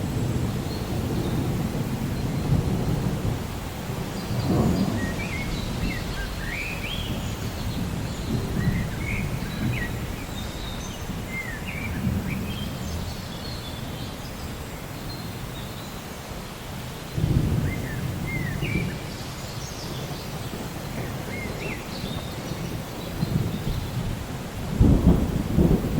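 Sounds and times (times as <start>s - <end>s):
distant thunder: 0.0s - 14.1s, 17.2s - 25.9s
rain rumble: 0.0s - 25.9s
birds chirping: 4.2s - 16.1s.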